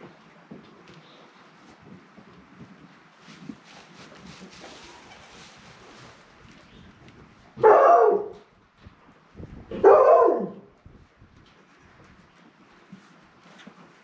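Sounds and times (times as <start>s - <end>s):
puppies barking: 7.6s - 8.4s.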